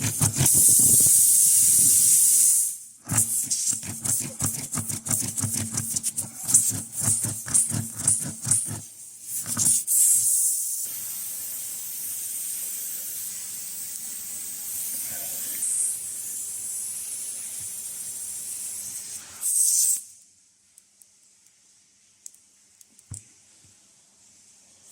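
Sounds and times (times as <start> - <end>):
air hissing: 0.0 - 4.6, 9.2 - 20.2.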